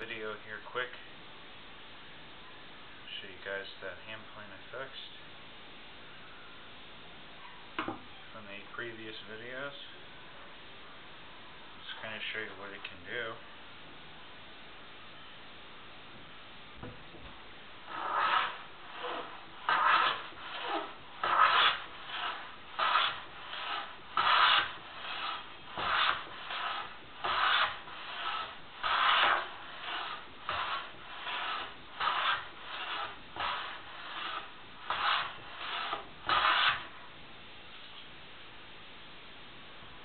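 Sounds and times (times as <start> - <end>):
hand plane shaving wood: 17.9 - 36.9.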